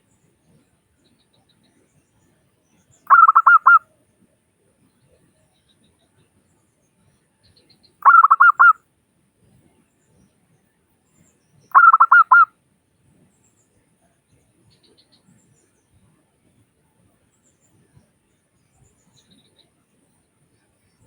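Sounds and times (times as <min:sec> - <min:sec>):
dove cooing: 0:03.1 - 0:03.8, 0:08.0 - 0:08.7, 0:11.7 - 0:12.4.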